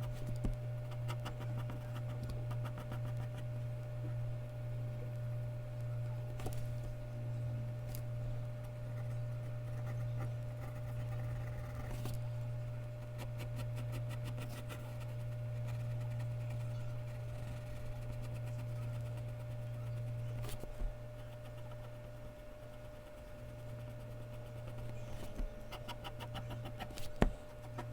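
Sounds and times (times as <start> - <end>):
pencil scratching on paper: 0.9 - 3.5, 8.9 - 12.2, 13.0 - 27.9.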